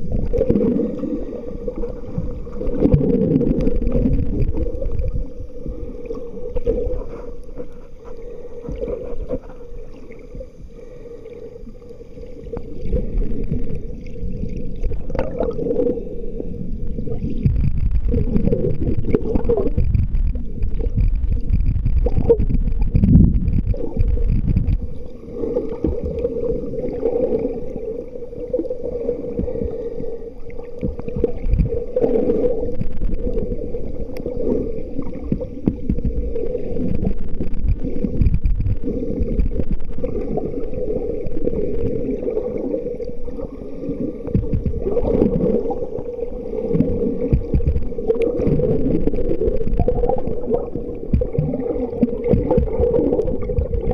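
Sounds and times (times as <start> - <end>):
dull rumble: 0.0 - 11.0, 11.7 - 53.9
muffled water sloshing and gurgling: 0.0 - 53.9.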